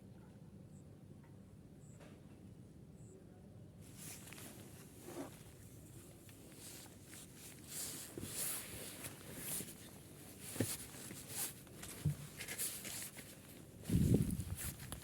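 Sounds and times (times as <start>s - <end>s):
rustling and handling noises: 3.8s - 15.0s.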